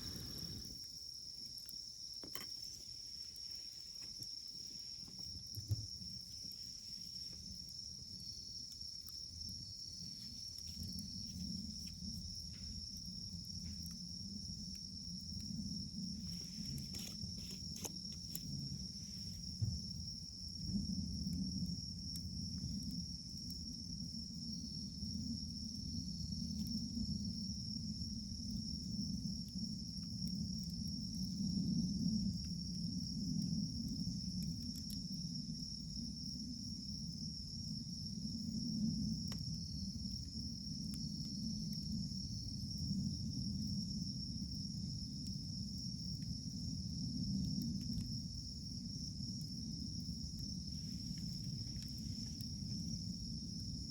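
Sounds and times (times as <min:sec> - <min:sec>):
fire crackling pops: 0:00.0 - 0:23.8
wood fire rumbling: 0:00.0 - 0:24.4, 0:47.6 - 0:53.9.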